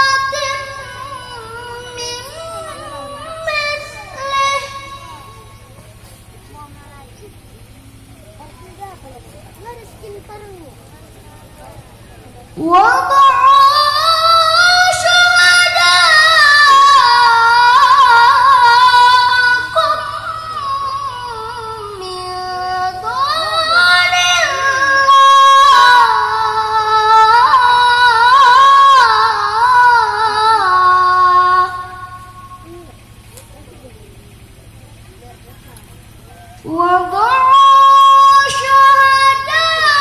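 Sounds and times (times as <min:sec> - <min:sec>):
person chanting recitation: 0:00.0 - 0:06.1, 0:11.2 - 0:33.0, 0:36.2 - 0:40.0.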